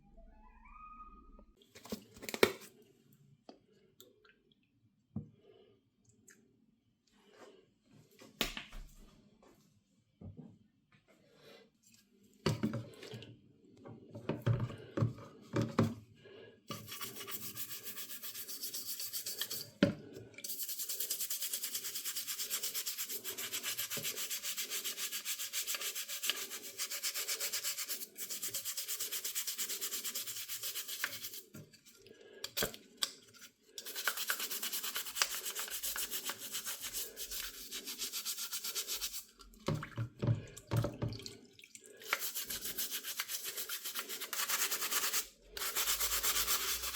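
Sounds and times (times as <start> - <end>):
hand sanding strokes: 16.7 - 19.6, 20.5 - 31.5, 33.8 - 39.3, 42.0 - 46.9.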